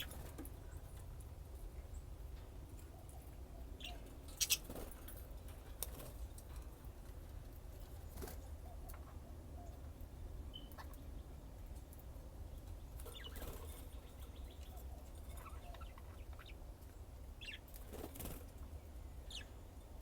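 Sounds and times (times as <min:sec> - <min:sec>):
budgerigars chirping: 0:03.8 - 0:04.7, 0:17.4 - 0:17.6.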